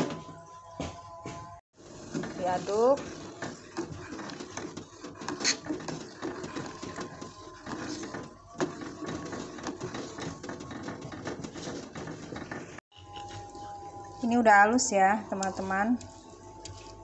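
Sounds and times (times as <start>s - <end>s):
pestle grinding in a mortar: 2.0s - 13.7s.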